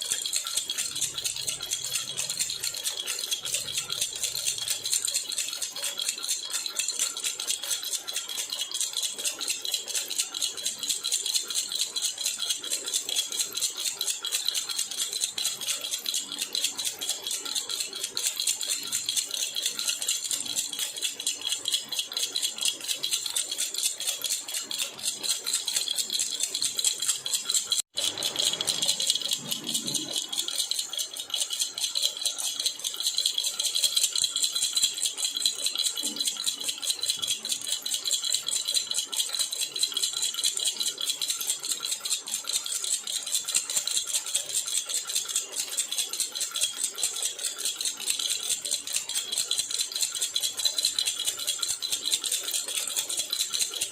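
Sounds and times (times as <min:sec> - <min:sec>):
baby rattle shaken: 0:26.6 - 0:53.9.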